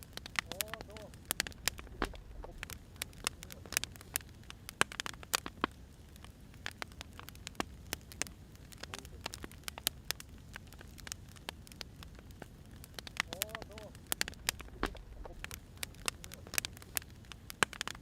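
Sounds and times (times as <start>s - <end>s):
firewood crackling and popping: 0.0s - 18.0s.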